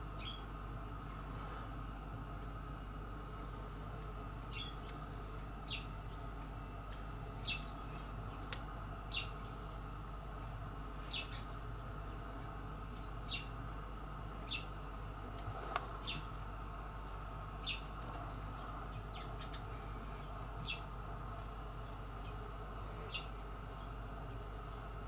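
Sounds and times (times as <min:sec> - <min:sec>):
steady low hum: 0:00.0 - 0:25.0
small bird chirping: 0:00.2 - 0:00.5, 0:04.5 - 0:06.2, 0:07.3 - 0:08.5, 0:09.1 - 0:09.6, 0:10.6 - 0:11.6, 0:13.0 - 0:15.1, 0:17.4 - 0:21.1, 0:21.8 - 0:23.4.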